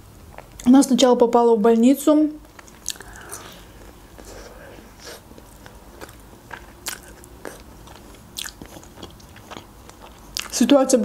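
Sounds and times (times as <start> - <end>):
biting and chewing pizza: 5.3 - 11.0.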